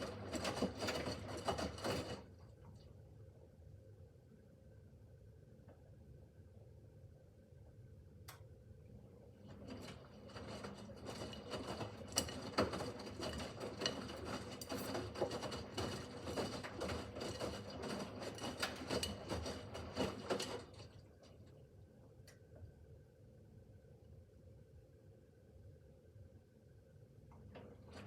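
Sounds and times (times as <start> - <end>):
washing machine drum tumbling: 9.5 - 21.0.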